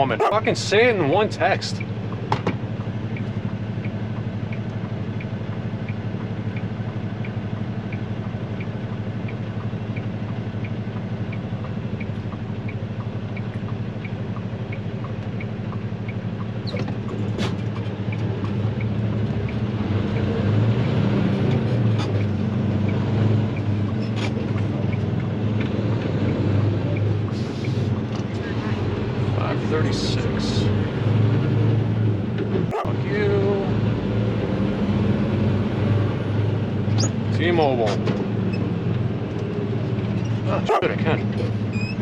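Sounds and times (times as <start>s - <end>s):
turn signal ticking: 1.5s - 20.3s, 21.5s - 28.4s.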